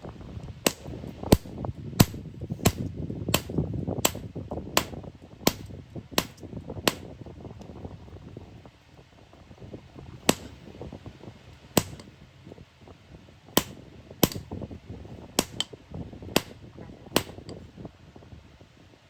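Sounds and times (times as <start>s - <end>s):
hammer striking iron: 0.6s - 4.2s, 4.8s - 7.1s, 10.3s - 10.6s, 11.8s - 12.1s, 13.6s - 14.4s, 15.4s - 15.7s, 16.4s - 16.6s, 17.2s - 17.5s.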